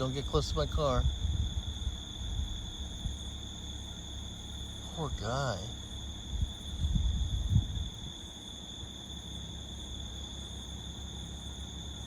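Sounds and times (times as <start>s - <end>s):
wind buffeting microphone: 0.0s - 3.4s, 6.2s - 8.3s
insect trill: 0.0s - 12.0s.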